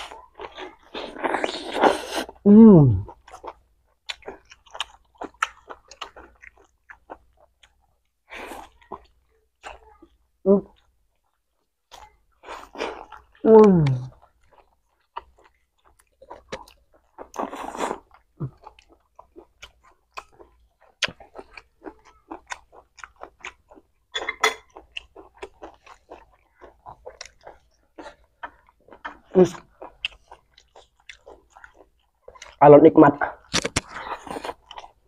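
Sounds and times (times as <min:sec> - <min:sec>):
chewing and biting meat: 0:03.0 - 0:10.0, 0:10.8 - 0:32.6, 0:33.4 - 0:35.0.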